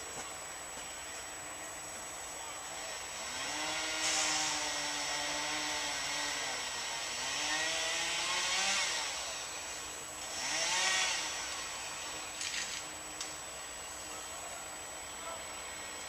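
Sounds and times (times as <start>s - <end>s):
small engine revving: 3.2s - 9.5s, 10.2s - 11.8s
hiss: 3.8s - 4.7s.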